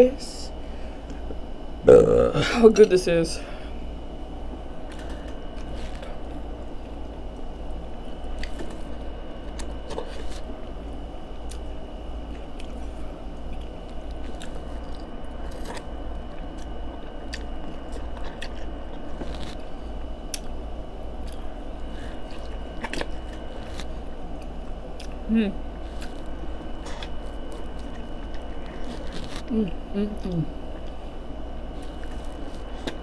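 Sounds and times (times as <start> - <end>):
steady low hum: 0.0 - 33.0
biting and chewing corn: 12.4 - 20.6, 21.2 - 25.2, 25.8 - 29.5, 31.8 - 33.0.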